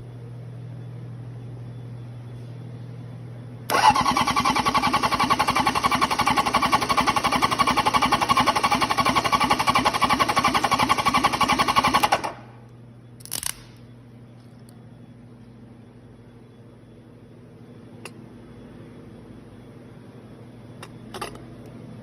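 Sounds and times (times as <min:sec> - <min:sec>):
engine cranking on starter: 0:03.7 - 0:12.4.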